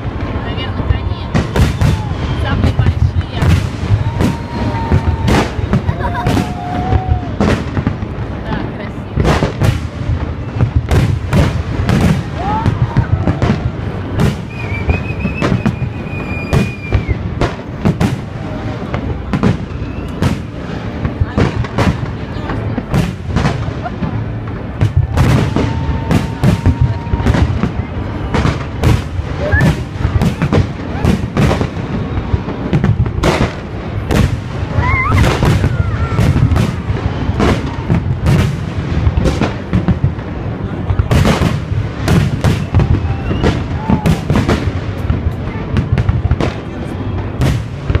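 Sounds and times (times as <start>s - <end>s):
fireworks bangs: 0.0s - 48.0s
wavering firework whistle: 1.3s - 7.6s, 12.3s - 17.4s, 19.5s - 20.5s, 24.8s - 28.4s, 42.4s - 44.4s
high whistle: 14.4s - 17.2s, 19.7s - 20.2s, 42.6s - 43.6s.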